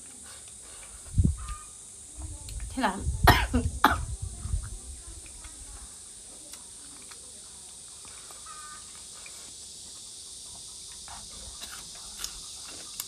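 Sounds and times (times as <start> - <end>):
chewing and mouth clicks: 6.5 - 9.6.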